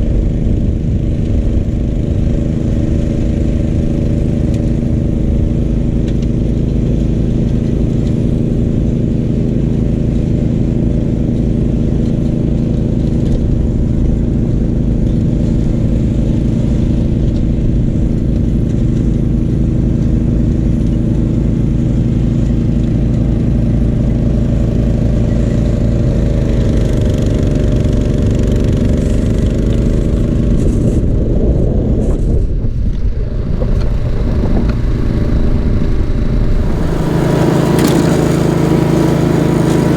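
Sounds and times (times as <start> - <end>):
tractor engine running under load: 0.0 - 39.9.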